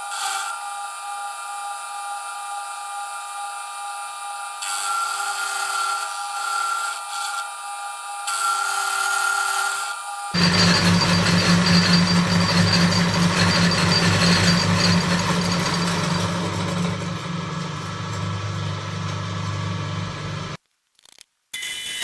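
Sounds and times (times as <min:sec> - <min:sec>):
high whine: 0:10.4 - 0:20.6
milling machine motor hum: 0:10.4 - 0:20.6.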